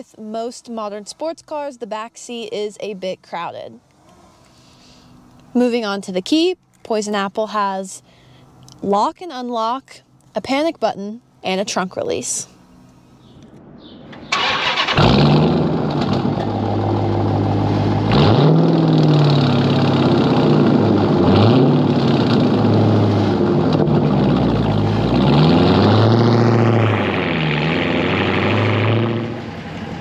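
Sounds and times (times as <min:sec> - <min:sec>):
car engine idling and revving: 0:14.2 - 0:30.0.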